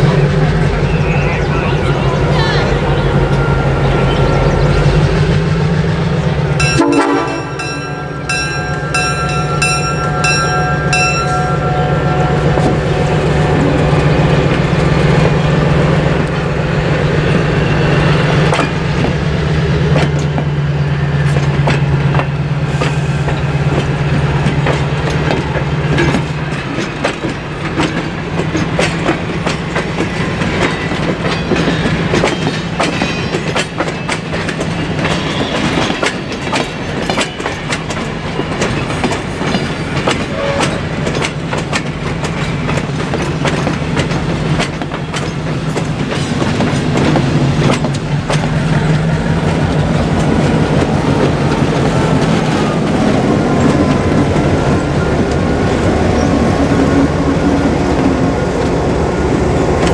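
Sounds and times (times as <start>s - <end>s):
locomotive engine humming: 0.0s - 59.9s
train horn chord: 6.6s - 14.2s, 40.3s - 40.8s
wheels clicking over rail joints: 18.3s - 58.9s.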